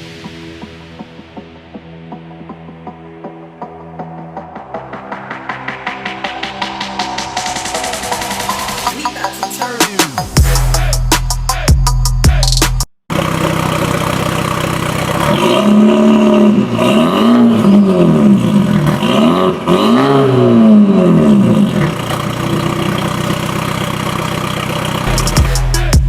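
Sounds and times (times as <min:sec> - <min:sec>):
car engine idling and revving: 0:13.1 - 0:26.0.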